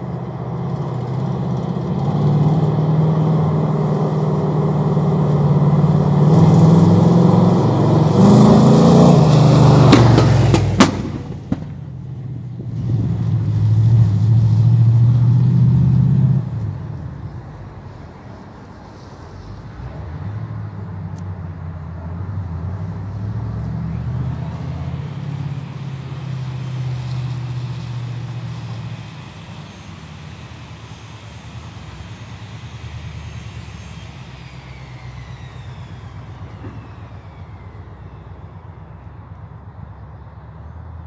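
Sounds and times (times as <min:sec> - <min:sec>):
engine humming: 0:00.0 - 0:41.0.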